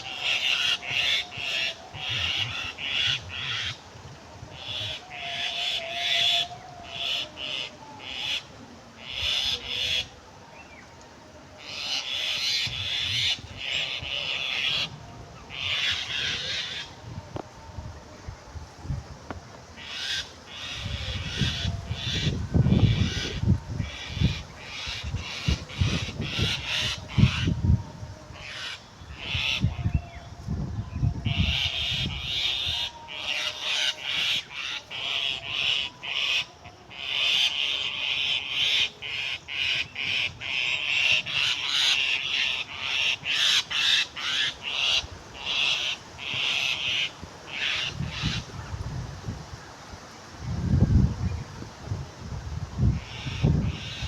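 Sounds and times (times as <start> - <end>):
bird calling in harsh notes: 11.6 - 16.9.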